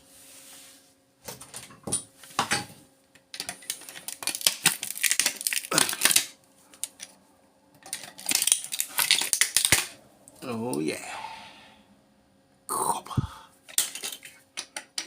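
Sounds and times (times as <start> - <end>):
power adapter clicking and crackling: 3.2 - 7.1, 7.8 - 10.0, 13.7 - 15.0.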